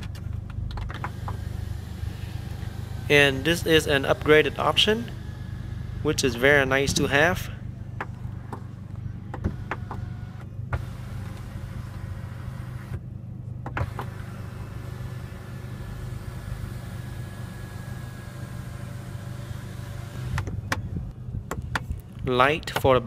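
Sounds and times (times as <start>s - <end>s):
low hum in car cabin: 0.0s - 23.0s
small electric motor whine: 0.9s - 6.5s, 8.2s - 13.0s, 13.8s - 20.5s.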